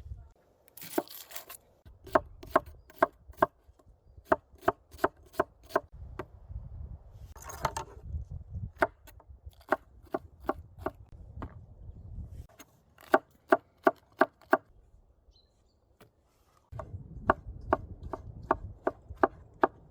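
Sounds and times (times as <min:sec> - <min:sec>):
knife chopping on cutting board: 0:02.1 - 0:03.5, 0:04.3 - 0:05.9.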